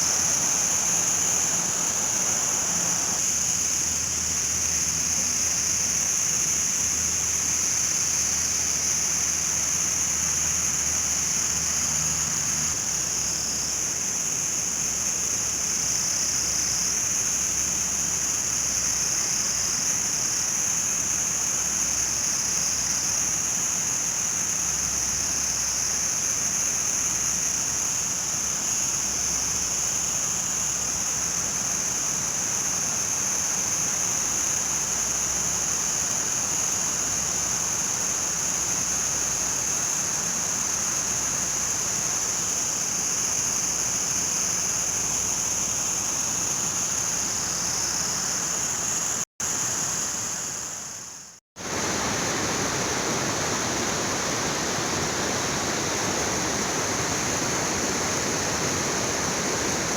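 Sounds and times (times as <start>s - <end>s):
rushing river water: 0.0s - 3.2s, 51.6s - 59.9s
high-pitched hiss: 0.0s - 59.9s.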